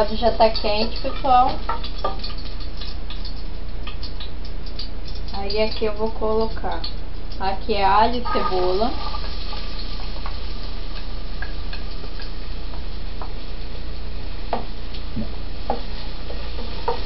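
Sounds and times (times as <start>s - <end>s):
garlic and onion sizzling in oil: 0.0s - 17.0s
utensil clicking against pan: 0.4s - 8.8s.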